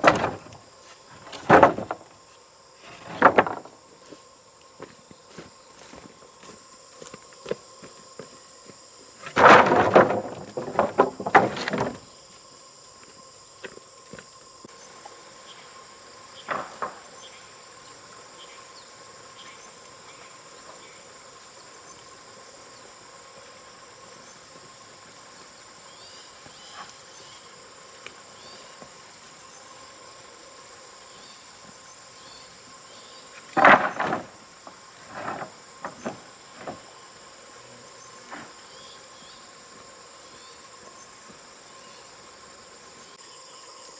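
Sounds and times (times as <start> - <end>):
knocking and clattering: 0.0 - 0.6, 1.2 - 2.1, 2.9 - 3.7, 9.3 - 12.0
insects chirring: 0.0 - 43.9.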